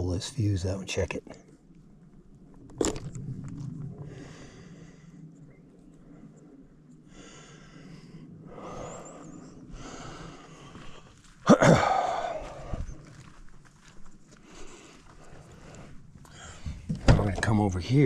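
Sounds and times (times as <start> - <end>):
man breathing: 4.0 - 5.4, 6.0 - 13.0, 14.3 - 16.9
man's loud grunt: 11.5 - 12.4.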